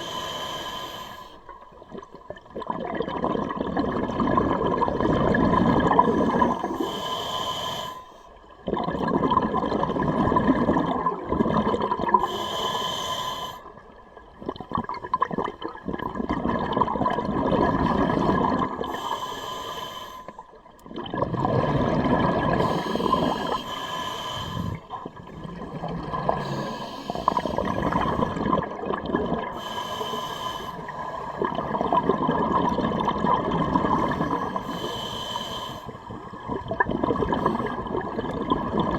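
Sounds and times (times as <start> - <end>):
regulator hissing inhales: 0.0 - 1.5, 6.2 - 8.2, 12.2 - 13.7, 18.9 - 20.4, 22.6 - 24.8, 26.4 - 27.7, 29.6 - 31.2, 34.4 - 36.0
exhaled bubbles rushing: 1.7 - 6.7, 8.6 - 12.3, 14.2 - 19.0, 20.8 - 23.6, 24.6 - 29.6, 30.9 - 34.6, 36.1 - 38.9.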